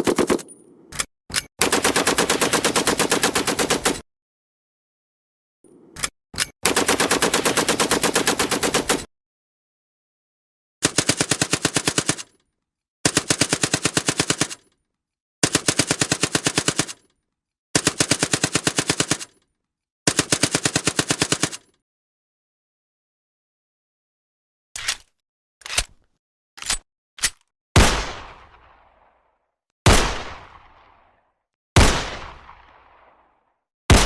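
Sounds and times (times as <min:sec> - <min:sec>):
automatic gunfire bursts: 0:01.6 - 0:04.0, 0:06.6 - 0:09.1.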